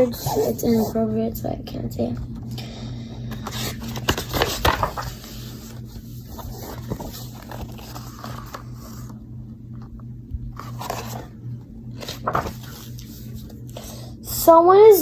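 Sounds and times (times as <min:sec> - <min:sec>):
low electrical hum: 0:00.0 - 0:15.0
handling rustles and scrapes: 0:03.4 - 0:09.2, 0:10.6 - 0:11.4, 0:12.0 - 0:13.8.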